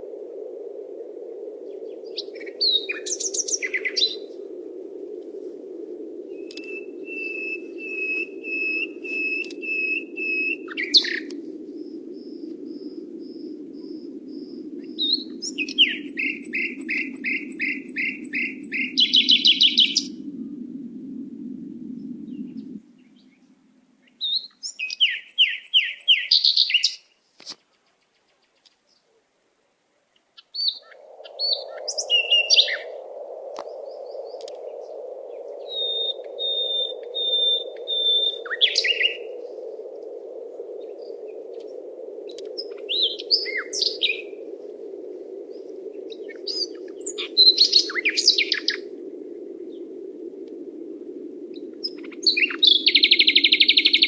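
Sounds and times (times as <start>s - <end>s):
birds trilling and chirping: 1.7s - 4.4s, 6.3s - 11.4s, 13.8s - 20.2s, 35.4s - 39.4s, 40.8s - 44.4s, 45.5s - 49.0s, 51.6s - 54.0s.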